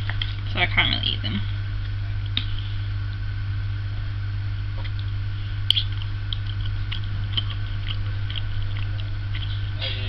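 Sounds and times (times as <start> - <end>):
steady low hum: 0.0 - 10.0
person chewing: 4.7 - 9.8
mouth clicks: 4.8 - 9.7.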